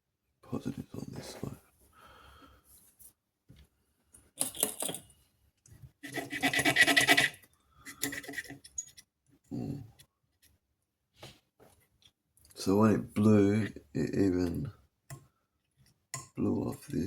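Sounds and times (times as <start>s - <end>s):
small hard parts scratching and clicking: 6.0s - 9.1s.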